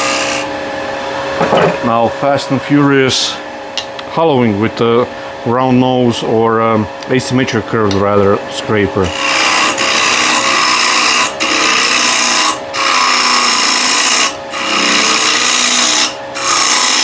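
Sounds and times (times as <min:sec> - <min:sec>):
scraper cutting wood on lathe: 0:00.0 - 0:00.5, 0:09.0 - 0:17.0
lathe humming: 0:00.0 - 0:17.0.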